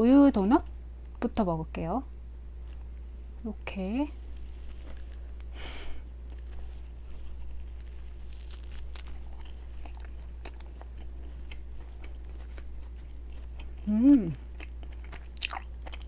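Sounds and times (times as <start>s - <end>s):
person biting and chewing: 4.5s - 16.0s.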